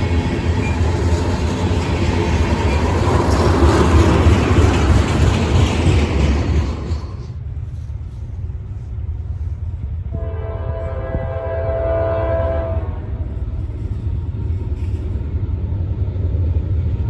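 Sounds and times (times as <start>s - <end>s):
train rumbling: 0.0s - 17.0s
locomotive air horn blast: 10.1s - 13.2s.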